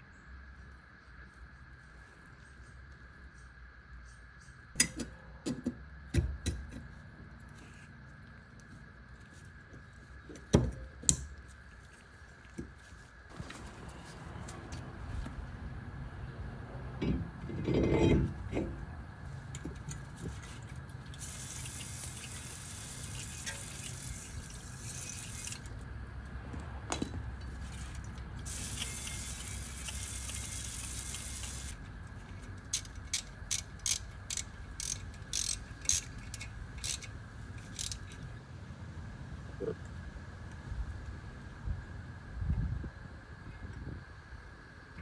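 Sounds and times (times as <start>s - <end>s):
hissing spray: 21.2s - 25.8s, 28.4s - 31.8s.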